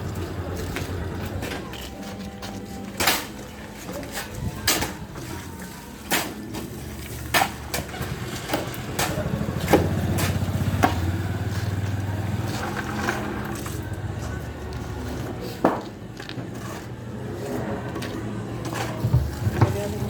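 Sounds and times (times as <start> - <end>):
engine running: 6.8 - 15.4.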